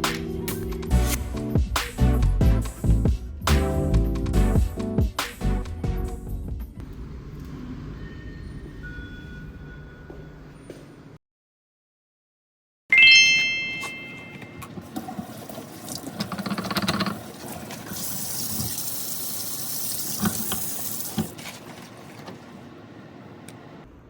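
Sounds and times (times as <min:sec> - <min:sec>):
bright chime: 0:12.9 - 0:14.6
running water hiss: 0:15.3 - 0:21.3.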